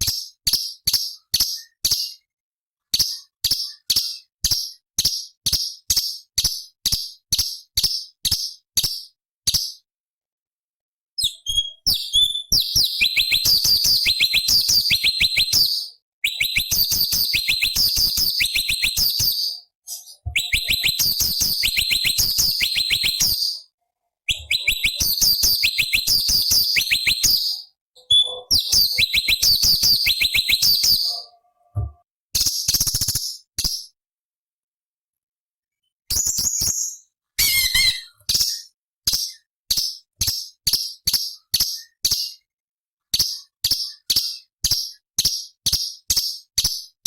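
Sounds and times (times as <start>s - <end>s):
bird singing: 11.2s - 23.7s, 24.3s - 32.0s, 36.6s - 38.7s.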